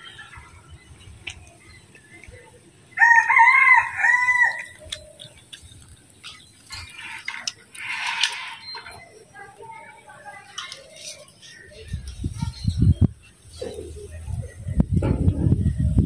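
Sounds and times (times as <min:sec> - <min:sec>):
rooster crowing: 0:03.0 - 0:04.8.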